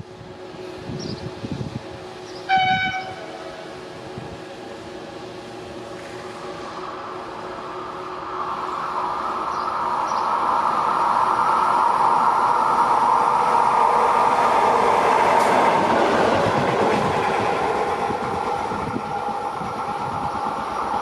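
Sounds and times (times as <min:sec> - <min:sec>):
train wheels rushing on rails: 0:00.0 - 0:21.0
train horn: 0:02.5 - 0:03.7.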